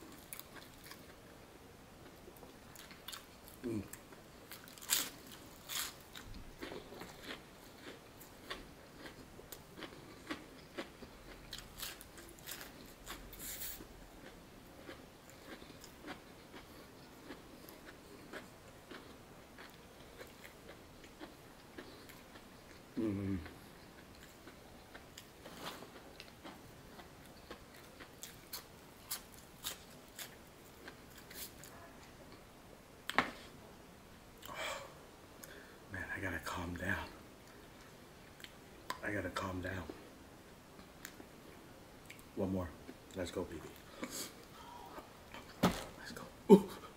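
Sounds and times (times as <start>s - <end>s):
chewing with crisp crunches: 0.0s - 1.4s, 2.0s - 32.4s.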